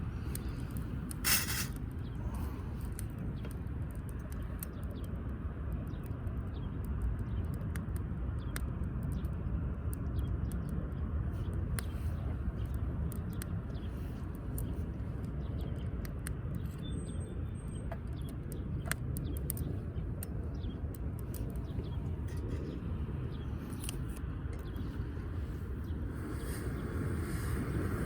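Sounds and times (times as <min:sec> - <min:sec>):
firewood crackling and popping: 0:00.0 - 0:28.0.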